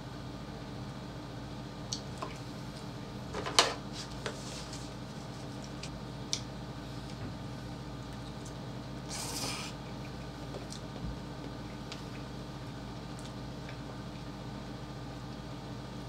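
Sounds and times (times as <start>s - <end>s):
low background hum: 0.0s - 16.0s
eating sounds: 8.0s - 14.4s.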